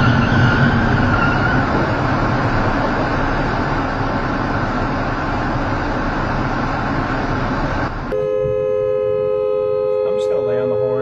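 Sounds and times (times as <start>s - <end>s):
vehicle road and engine noise: 0.0s - 11.0s
steady held tone: 8.1s - 11.0s.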